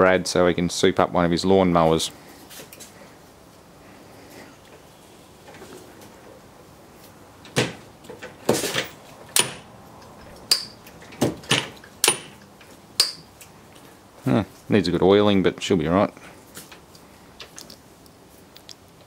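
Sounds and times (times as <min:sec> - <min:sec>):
lathe levers clanking: 0:08.8 - 0:10.8, 0:11.4 - 0:12.4.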